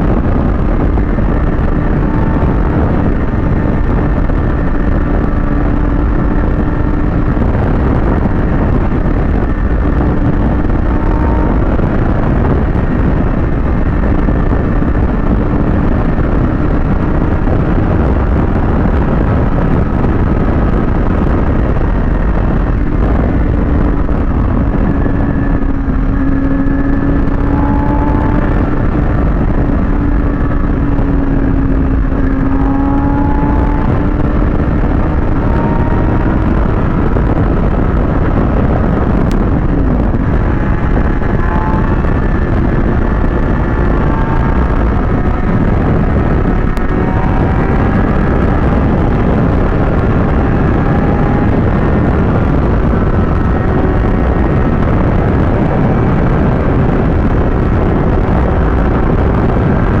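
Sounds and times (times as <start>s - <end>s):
motorcycle engine: 0.0s - 60.0s
wind and road noise: 0.0s - 60.0s.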